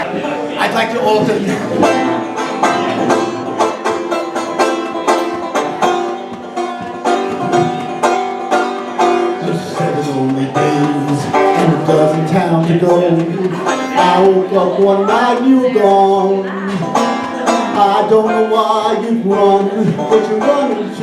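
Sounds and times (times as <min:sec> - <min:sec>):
banjo picking: 0:00.0 - 0:21.0.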